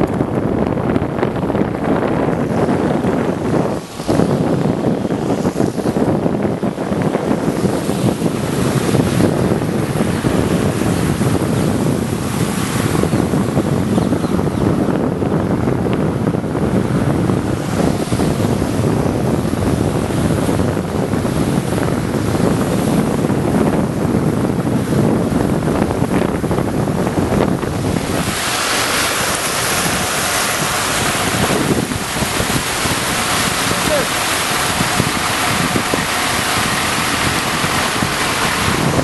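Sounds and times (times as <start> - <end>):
loud steady rushing noise: 0.0 - 39.0.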